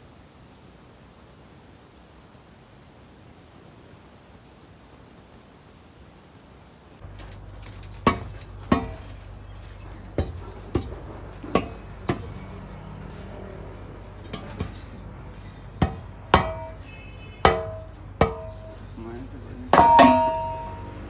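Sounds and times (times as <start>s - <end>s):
steady low hum: 0.0s - 21.0s
hammer striking steel: 8.0s - 9.2s, 10.2s - 12.4s, 15.8s - 18.8s, 19.7s - 21.0s.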